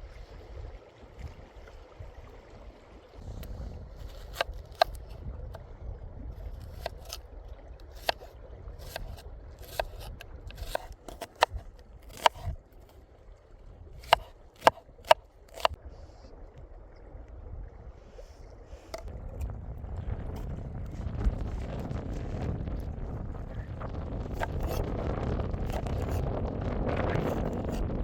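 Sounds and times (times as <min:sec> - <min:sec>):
low steady rumble: 0:01.4 - 0:28.0
sharp knocks and clicks: 0:14.0 - 0:15.8.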